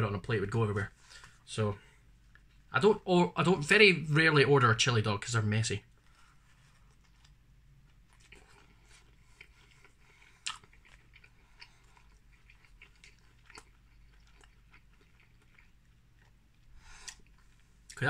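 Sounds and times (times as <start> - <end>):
man chewing: 5.9 - 18.0.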